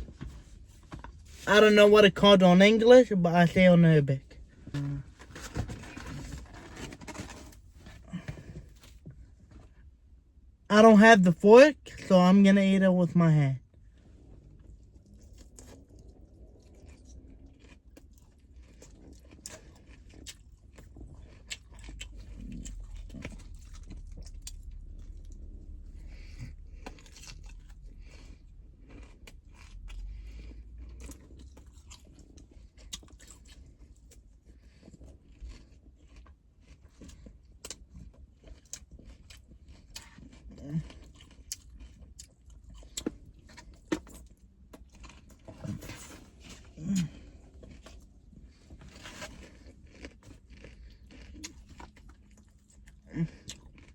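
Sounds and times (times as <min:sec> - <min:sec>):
person chewing food: 0:13.7 - 0:53.9.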